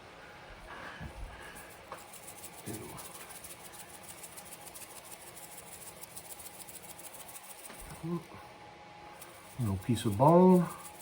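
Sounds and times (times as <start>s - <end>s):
hands rubbing raw chicken: 1.3s - 8.2s, 9.2s - 11.0s
fine ticking of sprinkled rub: 1.3s - 8.3s, 9.1s - 11.0s.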